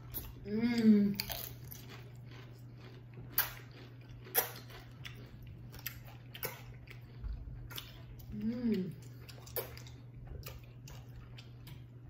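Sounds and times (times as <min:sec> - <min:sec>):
people chewing food: 0:00.0 - 0:12.0
steady low hum: 0:00.0 - 0:12.0.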